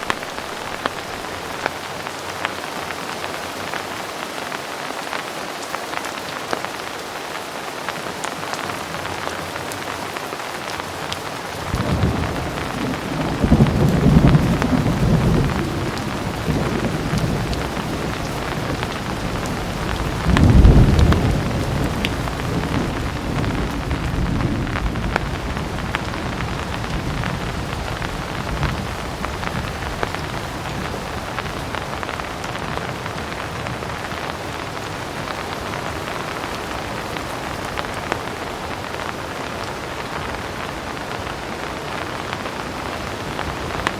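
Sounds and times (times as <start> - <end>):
heavy rain falling: 0.0 - 43.9
low rumble of thunder: 11.6 - 34.1.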